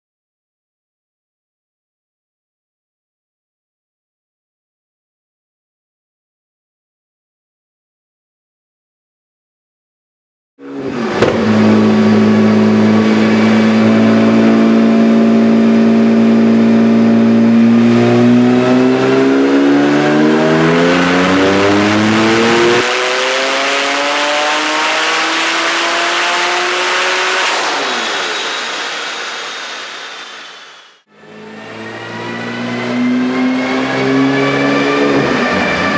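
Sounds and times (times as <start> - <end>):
car engine revving on dyno: 10.6 - 35.9.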